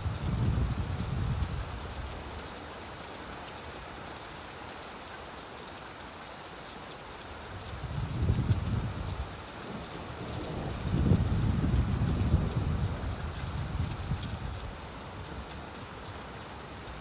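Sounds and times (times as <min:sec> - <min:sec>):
steady rainfall: 0:00.0 - 0:17.0
distant thunder rumble: 0:09.7 - 0:14.7.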